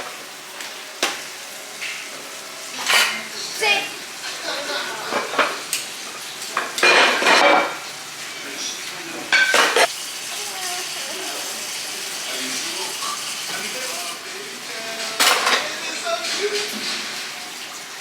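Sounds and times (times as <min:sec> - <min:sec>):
dishes and utensils clattering: 0:00.0 - 0:07.9, 0:09.1 - 0:09.9, 0:14.9 - 0:17.6.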